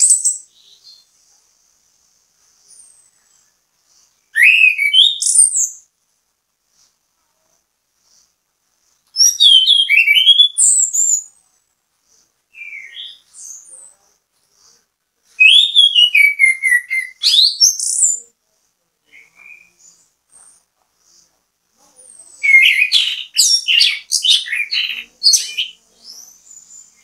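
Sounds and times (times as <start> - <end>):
thrush singing whistled notes: 4.3 - 5.9, 9.2 - 11.3, 15.4 - 18.2, 22.3 - 27.0.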